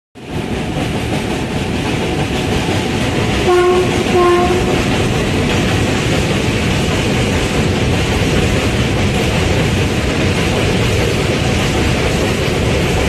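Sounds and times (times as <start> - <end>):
freight train rumbling over bridge: 0.2 - 13.0
locomotive horn blasts: 3.4 - 4.9.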